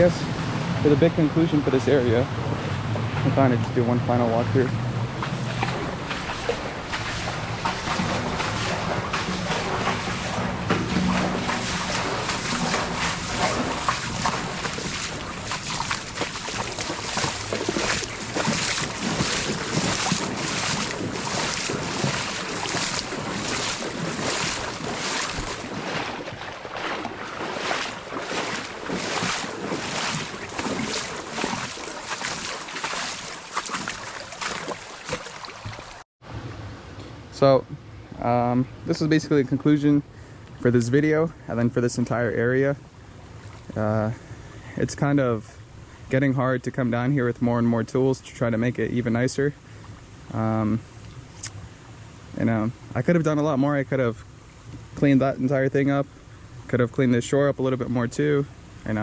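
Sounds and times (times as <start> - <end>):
fast-flowing creek rushing: 3.9 - 36.0
footsteps: 4.6 - 36.0.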